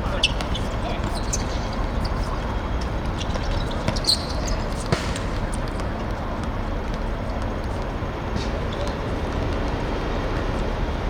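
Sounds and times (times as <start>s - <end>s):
football kicked and bouncing: 2.8s - 10.5s.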